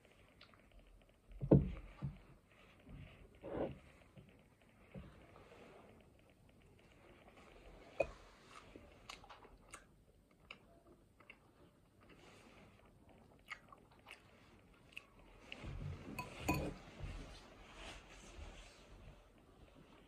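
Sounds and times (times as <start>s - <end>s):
chewing soft food: 0.0s - 16.4s
bowl knocking on surface: 16.2s - 16.8s.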